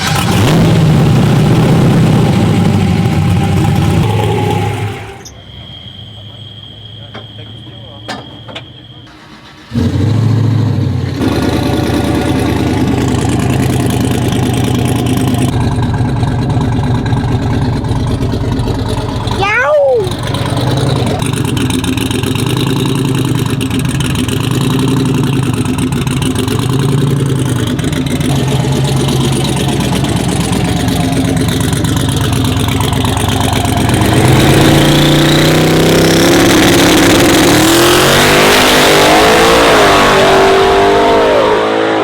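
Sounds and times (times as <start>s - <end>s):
truck engine rumbling: 0.0s - 42.0s
turbo whistle: 2.2s - 9.6s, 27.4s - 39.8s.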